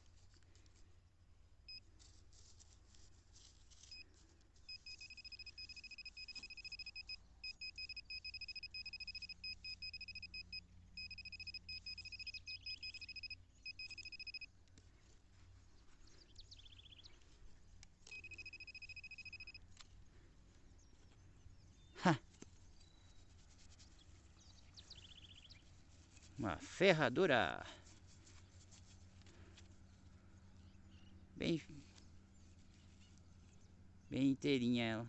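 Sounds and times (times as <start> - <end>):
metal detector high-pitched tone: 3.8 - 14.5, 18.1 - 19.6.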